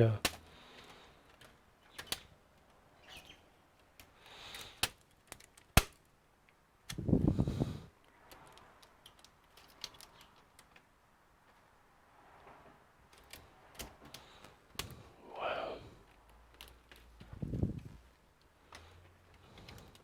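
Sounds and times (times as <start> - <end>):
plastic laptop case clicking: 0.2 - 2.3, 3.8 - 6.1.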